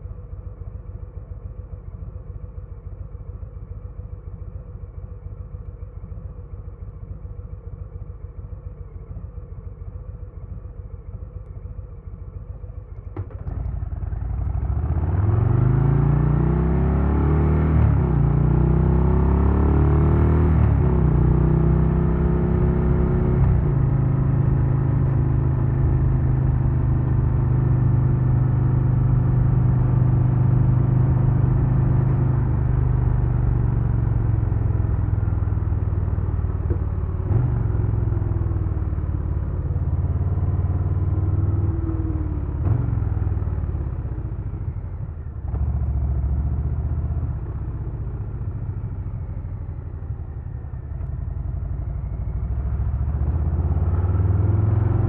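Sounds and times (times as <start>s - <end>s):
motorcycle engine revving: 13.2s - 55.0s.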